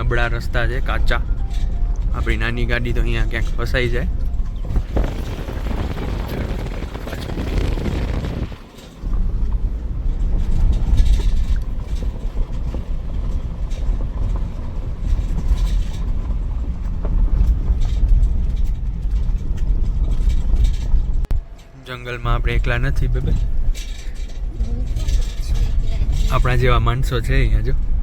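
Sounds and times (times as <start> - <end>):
engine and tyres rumbling: 0.0 - 28.0
knocks and rattles from bumps: 0.2 - 21.8.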